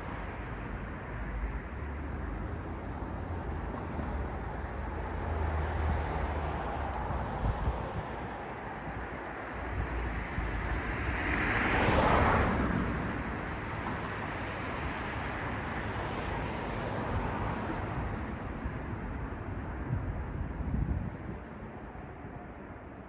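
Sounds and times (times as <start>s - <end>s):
steady traffic hum: 0.0s - 23.0s.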